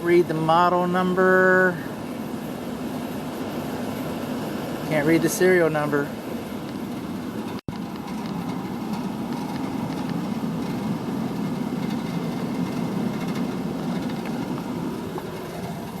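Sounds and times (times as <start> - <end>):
air handler humming: 0.0 - 16.0.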